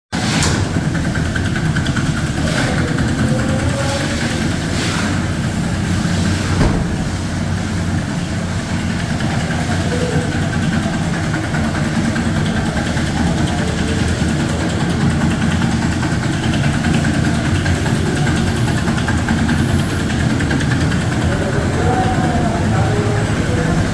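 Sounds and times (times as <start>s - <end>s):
car engine idling: 0.4s - 23.9s.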